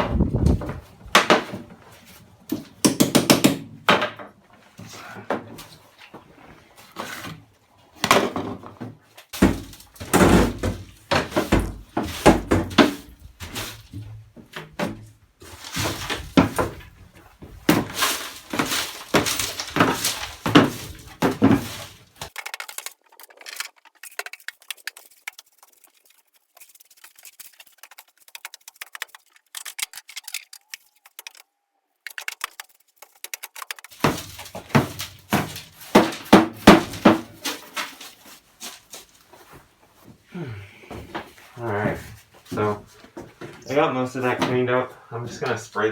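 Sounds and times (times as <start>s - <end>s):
rotten wood knocking and cracking: 0.0s - 1.8s, 8.0s - 25.2s, 27.0s - 39.2s.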